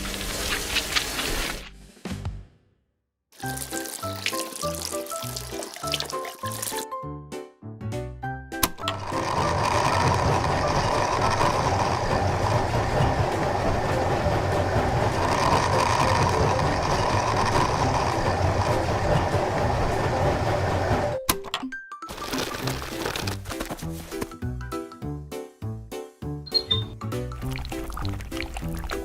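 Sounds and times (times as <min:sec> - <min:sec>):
small machine rattling: 0:08.8 - 0:21.2.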